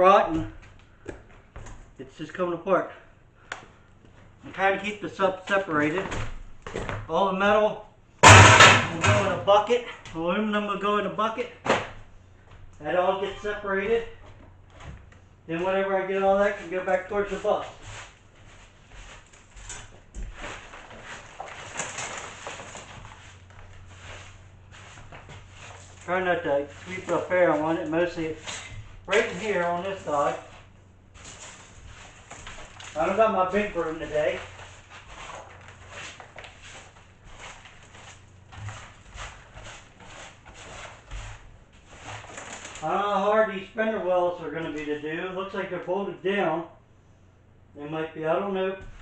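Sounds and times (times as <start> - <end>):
broom sweeping debris: 16.4 - 42.9.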